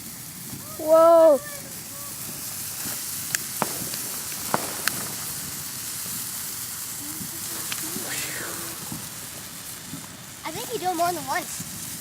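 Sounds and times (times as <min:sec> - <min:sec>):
firework sparks hissing: 0:00.0 - 0:12.0
sharp firework crackles: 0:00.0 - 0:12.0.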